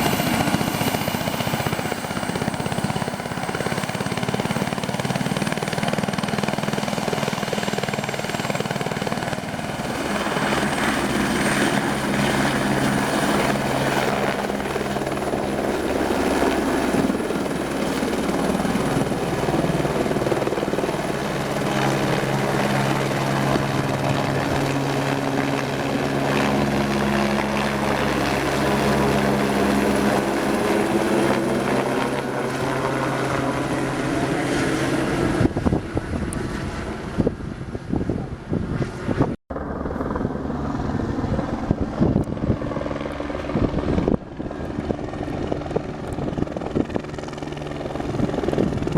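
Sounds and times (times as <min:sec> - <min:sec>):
helicopter rotor hum: 0:00.0 - 0:48.9.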